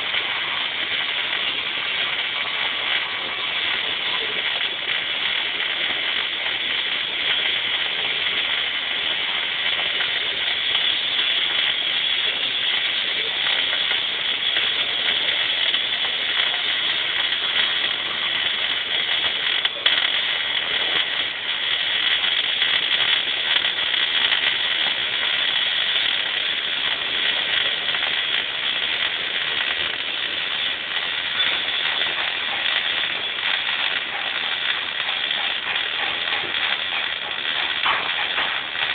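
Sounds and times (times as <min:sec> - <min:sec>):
welding arc crackling: 0:00.0 - 0:38.9.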